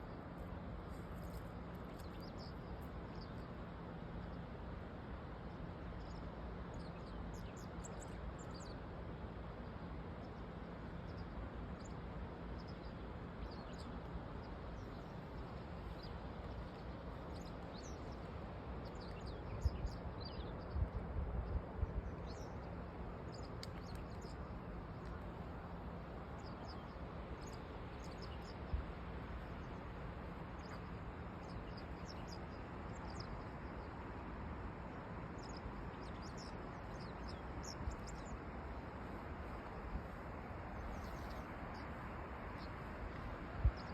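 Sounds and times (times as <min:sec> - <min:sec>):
steady outdoor noise: 0:00.0 - 0:43.9
small birds chirping: 0:12.6 - 0:21.0, 0:22.0 - 0:34.0, 0:34.8 - 0:39.0, 0:39.6 - 0:43.9.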